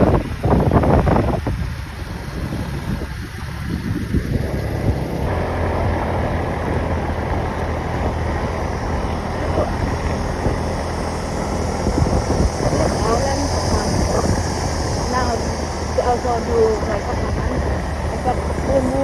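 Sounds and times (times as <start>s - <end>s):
motor engine running: 0.0s - 19.0s
wind rushing over microphone: 0.0s - 19.0s.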